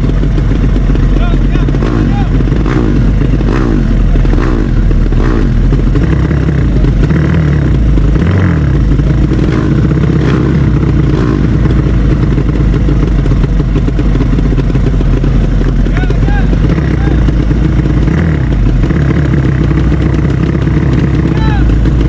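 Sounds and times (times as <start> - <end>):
loud motorcycle engines running: 0.0 - 22.0.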